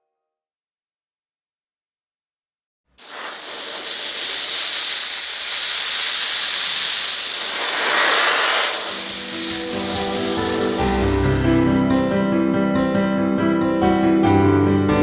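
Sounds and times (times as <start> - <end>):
loud spraying hiss: 3.0 - 11.9
music: 10.9 - 15.0.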